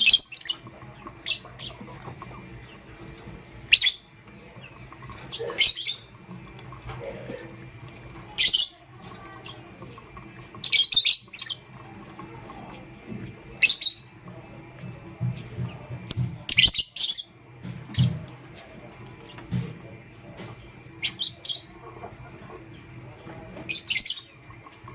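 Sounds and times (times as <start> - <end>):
lovebirds chirping: 0.0 - 24.9.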